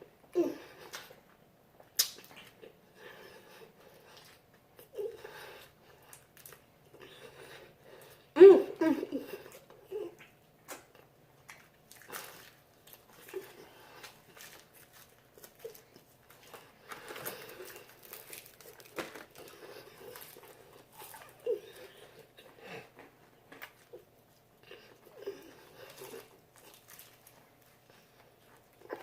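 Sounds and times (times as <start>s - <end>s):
people chewing crunchy food: 0.6s - 29.0s.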